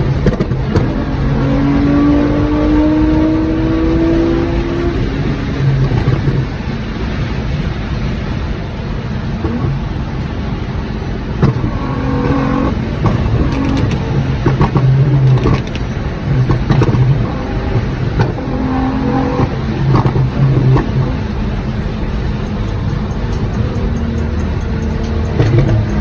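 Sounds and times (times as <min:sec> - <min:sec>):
exhaust pops and bangs: 0:00.0 - 0:02.4, 0:05.0 - 0:06.6, 0:11.3 - 0:26.0
car engine and loud exhaust: 0:00.0 - 0:26.0.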